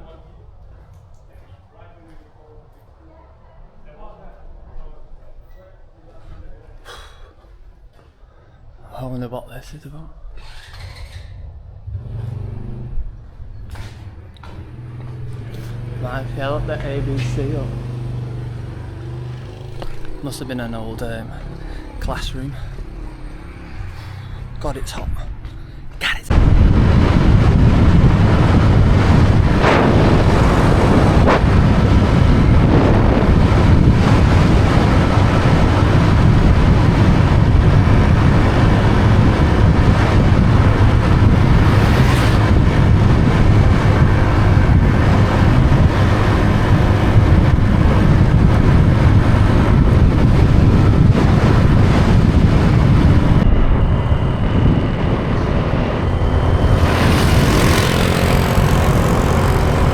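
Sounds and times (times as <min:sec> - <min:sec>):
road noise: 0:00.0 - 0:59.9
motorbike engine: 0:10.2 - 0:24.6, 0:25.3 - 0:59.9
wind buffeting microphone: 0:21.2 - 0:59.9.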